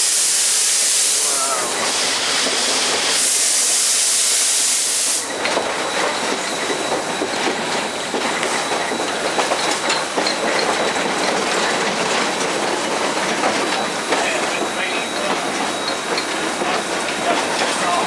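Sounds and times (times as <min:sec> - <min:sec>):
loud steam hiss: 0:00.0 - 0:10.2, 0:11.0 - 0:18.0
locomotive clattering on rails: 0:01.2 - 0:03.3, 0:05.2 - 0:18.0.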